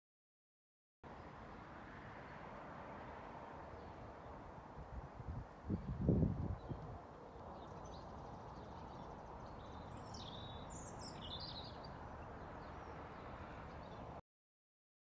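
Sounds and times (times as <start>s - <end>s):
faint outdoor background hiss: 1.1s - 14.2s
birds chirping: 5.7s - 14.0s.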